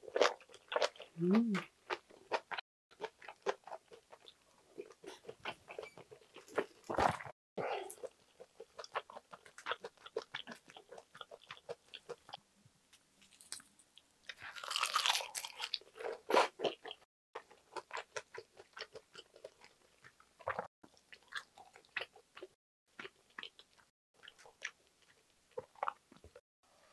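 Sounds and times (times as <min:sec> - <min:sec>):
wet chewing and smacking: 0:08.0 - 0:12.4, 0:13.2 - 0:26.4.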